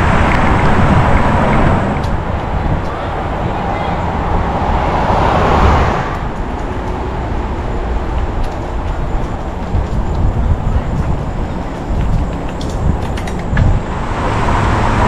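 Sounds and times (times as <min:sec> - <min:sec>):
wind rumbling on microphone: 0:00.0 - 0:15.0
bicycle clicks and rattles: 0:06.2 - 0:14.0.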